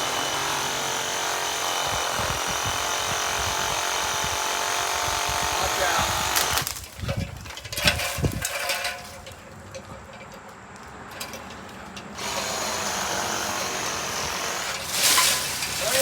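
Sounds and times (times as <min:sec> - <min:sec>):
power saw motor whining: 0:00.0 - 0:06.9, 0:12.2 - 0:16.0.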